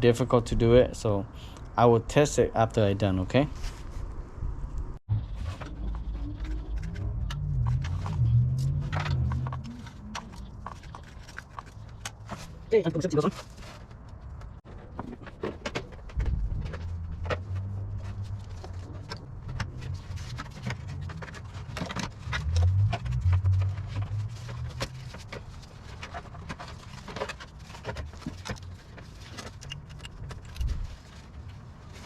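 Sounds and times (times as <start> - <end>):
low rumble: 4.0 - 11.1.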